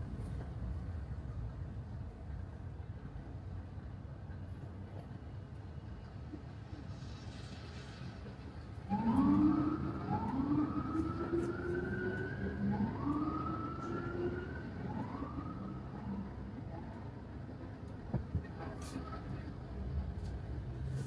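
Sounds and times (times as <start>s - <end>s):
emergency vehicle siren: 8.8s - 18.0s, 18.6s - 19.7s.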